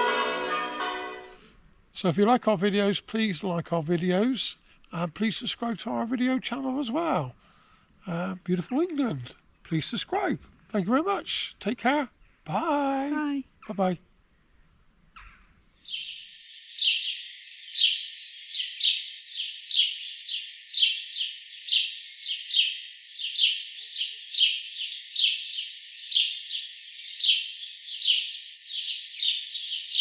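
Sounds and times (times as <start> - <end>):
bird chirping: 15.8 - 30.0.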